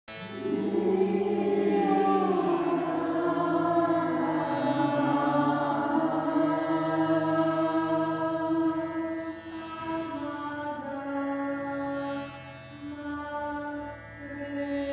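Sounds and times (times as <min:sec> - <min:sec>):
steady low drone: 0:00.1 - 0:11.0
slow mantra chant: 0:00.1 - 0:12.2, 0:12.9 - 0:14.9.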